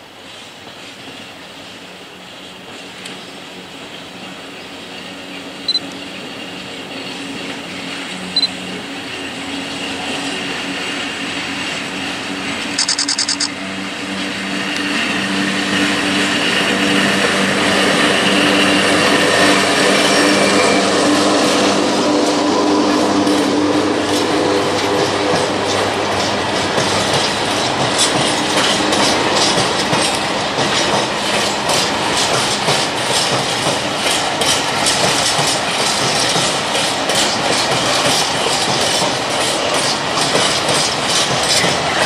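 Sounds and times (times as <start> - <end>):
electric locomotive humming: 0.0 - 42.0
short high beeps: 12.8 - 13.5
wagon wheels clattering over rail joints: 24.2 - 42.0.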